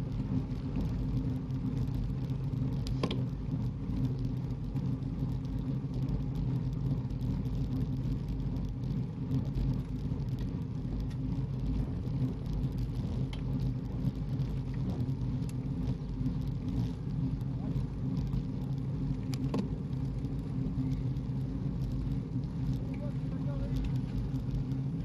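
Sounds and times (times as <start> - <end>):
road rumble: 0.0 - 25.0
car engine hum: 7.5 - 25.0.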